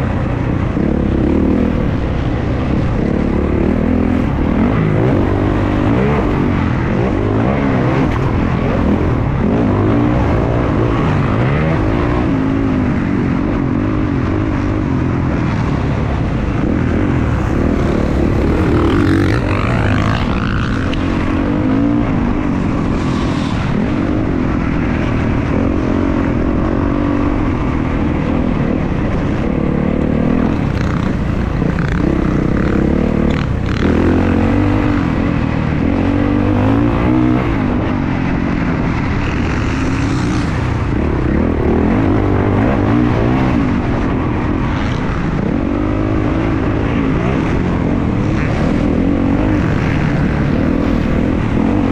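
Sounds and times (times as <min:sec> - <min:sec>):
dirt bike engine revving: 0:16.5 - 0:24.0, 0:38.8 - 0:51.9.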